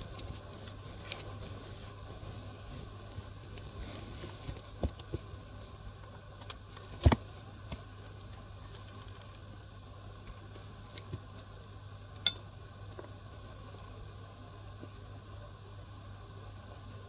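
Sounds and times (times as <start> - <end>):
light patter and small knocks: 0.0 - 9.5.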